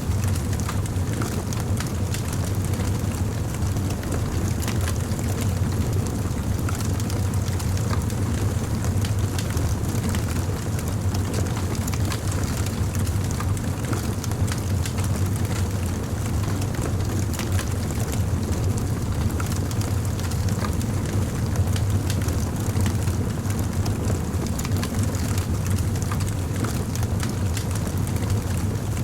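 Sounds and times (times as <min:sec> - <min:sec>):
fire crackling: 0:00.0 - 0:29.0.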